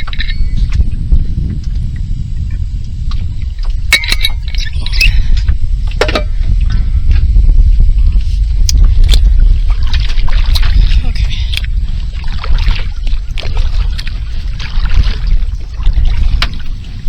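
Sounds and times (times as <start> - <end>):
wind rumbling on microphone: 0.0 - 17.0
paddle splashing water: 8.2 - 17.0.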